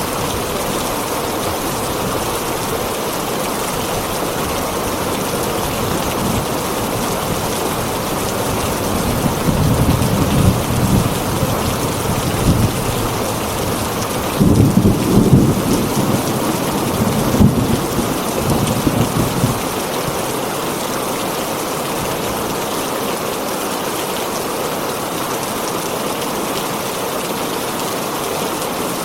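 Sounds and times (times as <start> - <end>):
heavy rain on a tin roof: 0.0 - 29.0
thunder rolling: 8.8 - 19.9.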